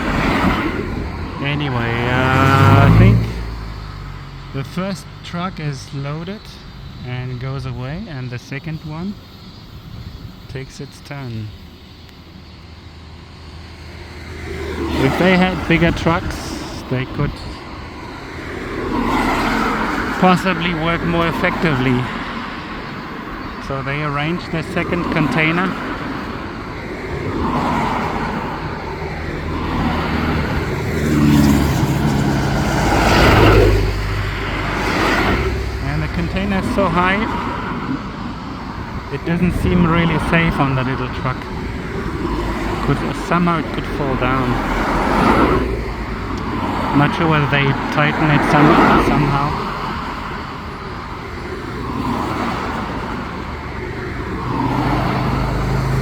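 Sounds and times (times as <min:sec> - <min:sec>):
vehicle passing by: 0:00.0 - 0:10.1, 0:11.2 - 0:56.0
traffic engines and tyres: 0:00.0 - 0:56.0.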